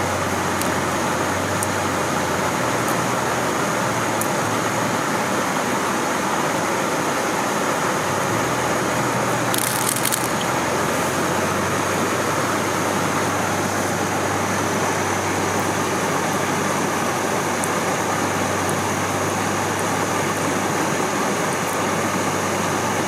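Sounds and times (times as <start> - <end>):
stream water rushing: 0.0 - 23.0
crackling crunch: 9.4 - 10.7.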